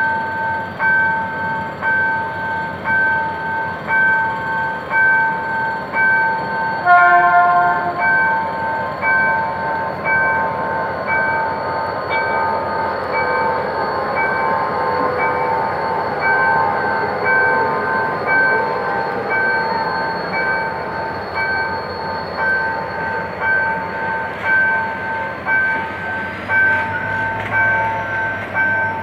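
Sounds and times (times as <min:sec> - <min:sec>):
level crossing bell ringing: 0:00.0 - 0:29.0
train passing: 0:00.0 - 0:29.0
locomotive horn blast: 0:06.8 - 0:08.3.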